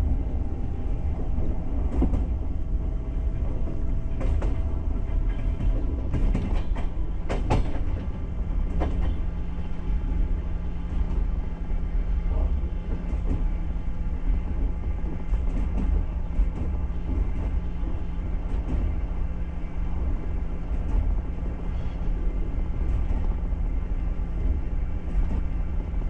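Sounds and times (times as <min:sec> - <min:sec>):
train wheels rumbling on rails: 0:00.0 - 0:26.0
sharp clicks and knocks: 0:03.4 - 0:09.2.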